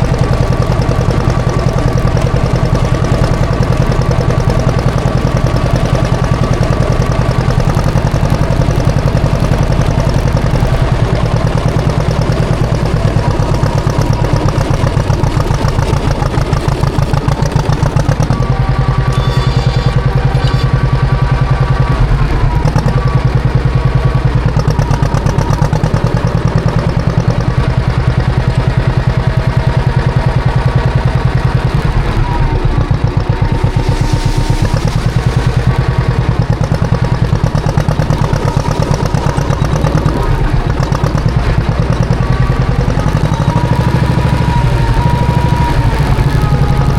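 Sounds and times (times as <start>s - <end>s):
two-cylinder engine running: 0.0s - 46.9s.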